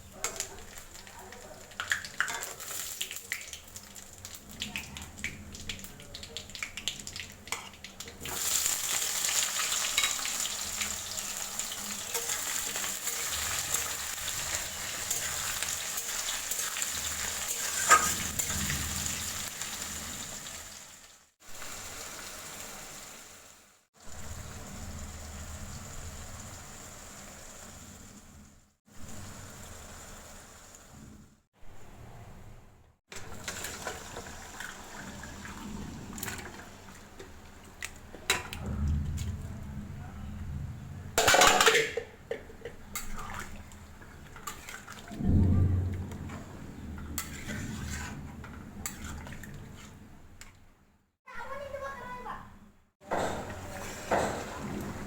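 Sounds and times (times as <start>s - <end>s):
food sizzling in hot oil: 0.0s - 31.2s, 33.2s - 38.5s.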